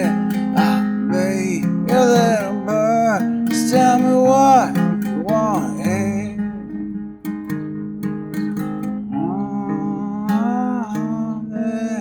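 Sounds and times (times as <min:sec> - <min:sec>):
wordless vocal: 0:00.0 - 0:06.5
person singing: 0:00.0 - 0:06.6, 0:09.1 - 0:12.0
acoustic guitar strumming: 0:00.0 - 0:12.0.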